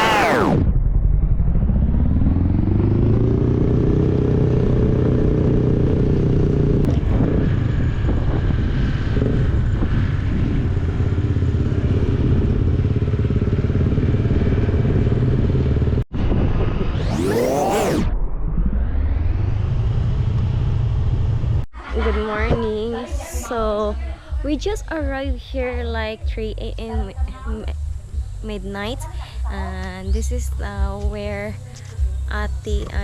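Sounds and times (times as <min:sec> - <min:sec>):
motorcycle engine: 0:00.0 - 0:16.0, 0:16.6 - 0:21.6.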